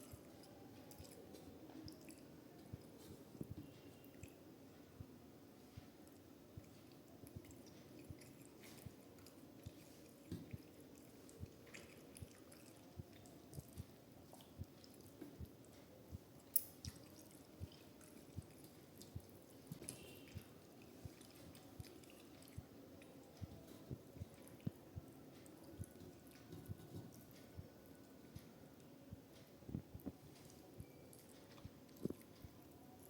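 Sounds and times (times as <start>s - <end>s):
person chewing food: 0.0s - 3.3s, 6.0s - 15.8s, 16.4s - 24.8s, 30.0s - 33.0s.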